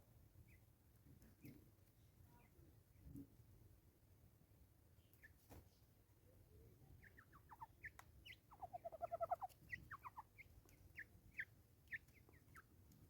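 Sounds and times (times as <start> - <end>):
birds chirping faintly: 4.8 - 13.0.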